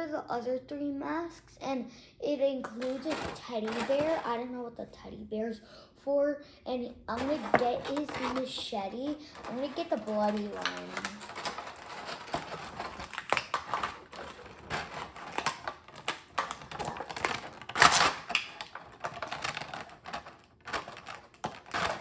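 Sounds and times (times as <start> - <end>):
plastic packaging crinkling: 2.8 - 4.4, 7.1 - 22.0
loud plastic crackle: 7.2 - 22.0.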